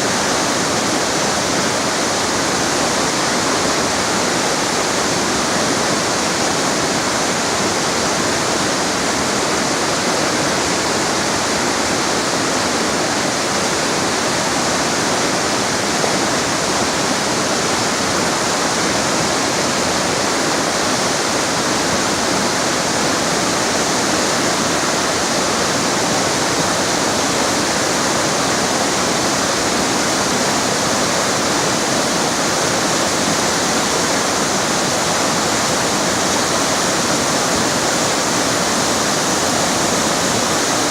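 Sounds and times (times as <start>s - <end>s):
river rushing over rocks: 0.0s - 40.9s.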